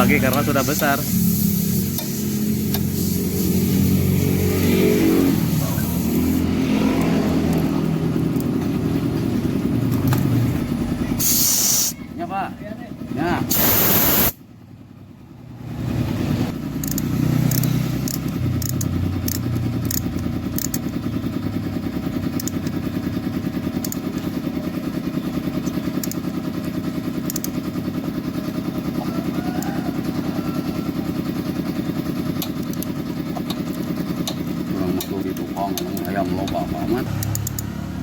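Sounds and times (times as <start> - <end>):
small motorcycle engine idling: 0.0 - 38.0.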